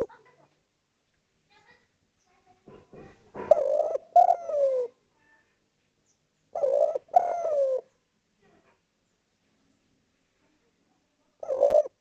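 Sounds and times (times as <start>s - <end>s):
dove cooing: 3.3s - 5.0s, 6.5s - 7.9s, 11.4s - 12.0s.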